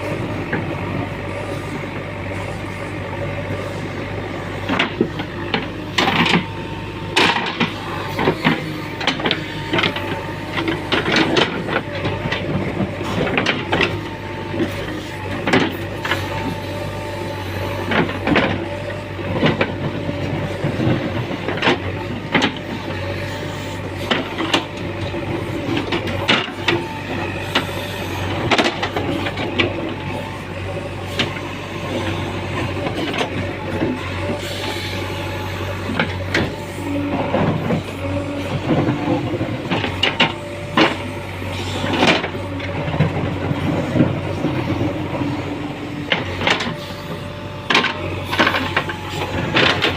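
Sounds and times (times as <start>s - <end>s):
diesel engine running: 0.0s - 49.9s
machine knocks and clanks: 4.6s - 16.2s.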